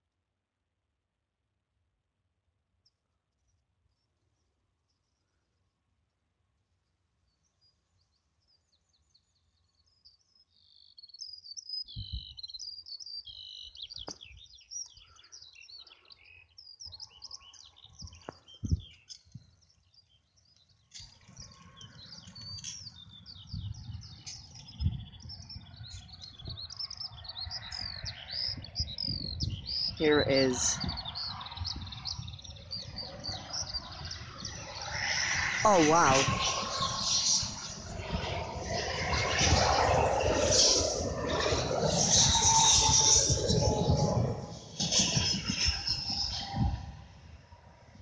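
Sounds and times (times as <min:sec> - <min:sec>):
small birds chirping: 0:07.2 - 0:37.8.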